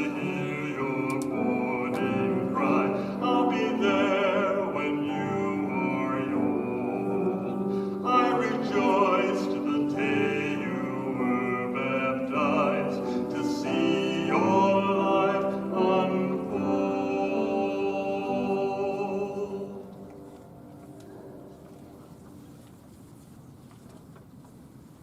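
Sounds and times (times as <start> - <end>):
person singing with vibrato: 0.0 - 20.0
musical accompaniment: 0.0 - 22.4.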